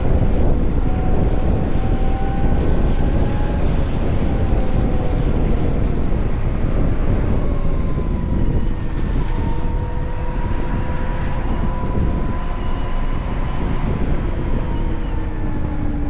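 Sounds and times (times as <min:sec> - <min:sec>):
electric motor whine: 0:00.0 - 0:16.0
wind and road noise: 0:00.0 - 0:16.0.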